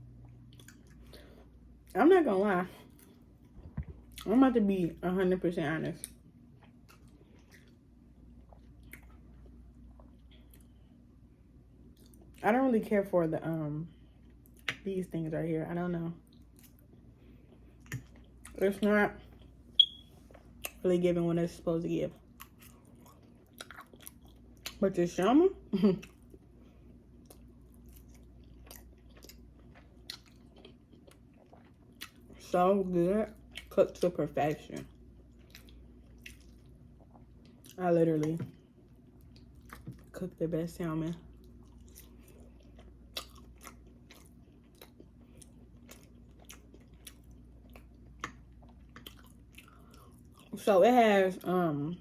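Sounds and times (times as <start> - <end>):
person chewing food: 0.1 - 1.7, 6.0 - 10.8, 16.2 - 18.6, 22.2 - 24.8, 26.0 - 32.4, 34.9 - 40.1, 41.3 - 50.6.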